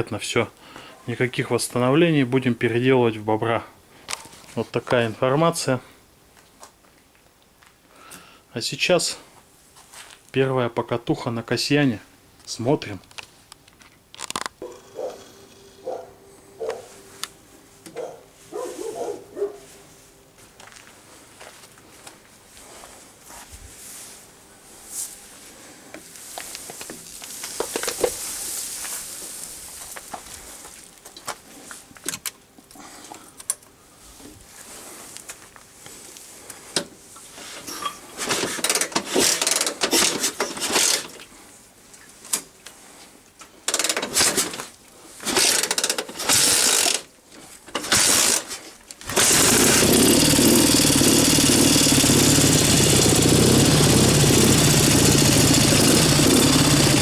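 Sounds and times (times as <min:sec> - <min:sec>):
motorcycle engine running: 0:49.1 - 0:57.0.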